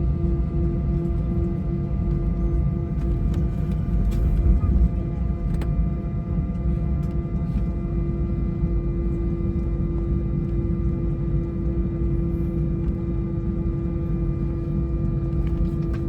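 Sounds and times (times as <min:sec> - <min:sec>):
rattling clicks in cabin: 0:03.0 - 0:05.8, 0:06.5 - 0:07.8, 0:15.0 - 0:16.0.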